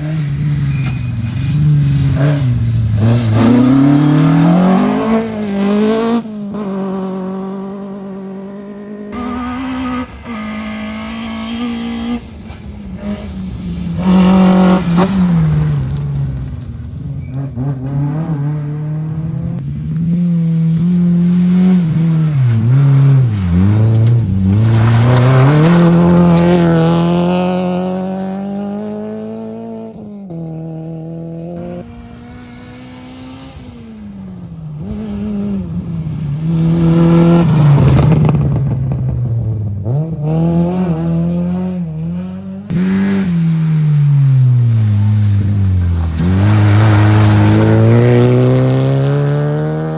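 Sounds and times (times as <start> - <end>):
rally car engine revving: 0.0 - 49.9.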